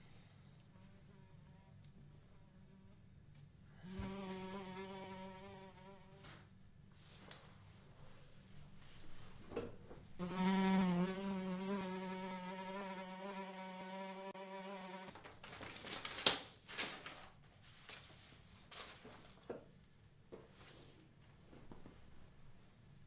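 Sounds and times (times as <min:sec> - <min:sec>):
fly buzzing: 0:03.9 - 0:06.2, 0:10.2 - 0:15.1
papers shuffled on a desk: 0:15.1 - 0:19.7.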